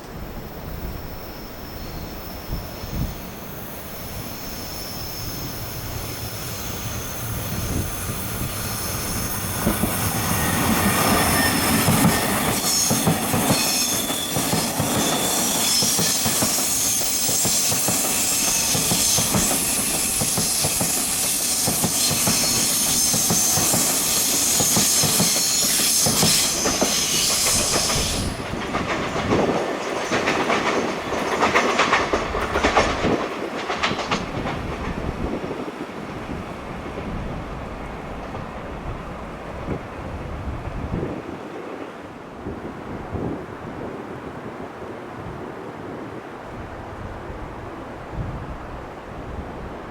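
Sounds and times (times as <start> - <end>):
electric train passing: 0.0 - 49.9
train wheel squeal: 0.3 - 33.2.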